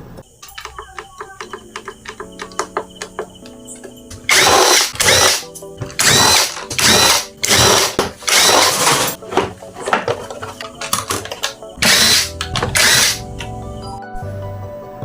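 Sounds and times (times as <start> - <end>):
faint music: 0.0 - 15.0
power drill whirring: 4.3 - 5.4, 6.0 - 9.2, 11.8 - 13.2.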